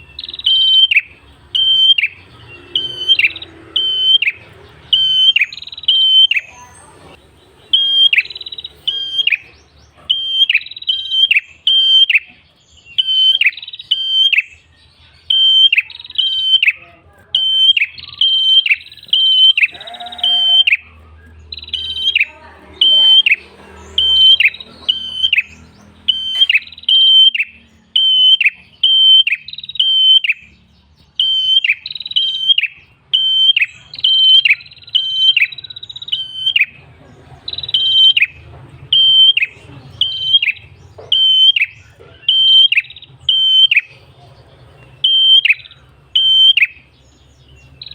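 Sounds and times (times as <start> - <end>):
bird chirping sharp high notes: 0.0 - 16.8, 17.4 - 36.8, 37.5 - 47.9.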